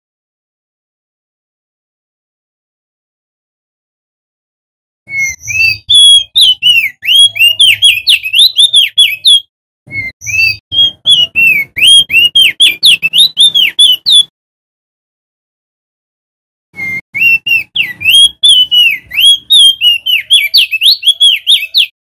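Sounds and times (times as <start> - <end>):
bird whistling song: 5.1 - 14.3, 16.8 - 22.0.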